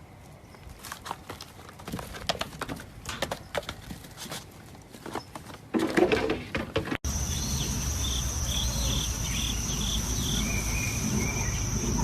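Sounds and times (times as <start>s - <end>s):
high insect-like trill: 7.1s - 12.0s.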